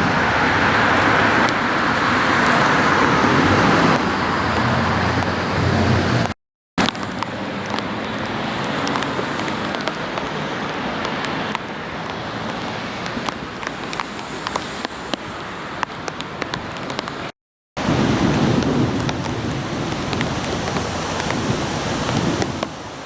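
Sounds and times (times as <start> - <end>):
road traffic in heavy rain: 0.0 - 23.0
rain hiss: 6.8 - 23.0.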